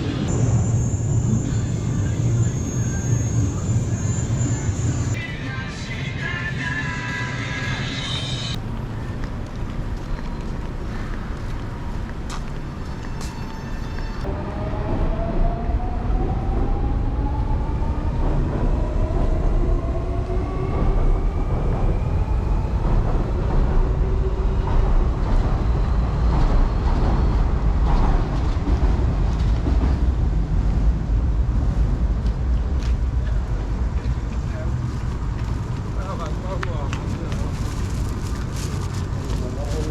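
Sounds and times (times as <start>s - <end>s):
train motor whine: 0.0s - 27.4s
electric train rumble: 0.0s - 39.9s.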